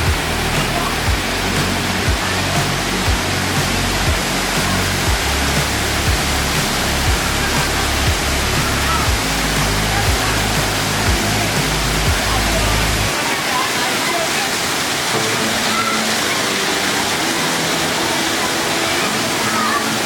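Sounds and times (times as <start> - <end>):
background music with deep bass: 0.0 - 13.1
waterfall roaring: 0.0 - 20.0.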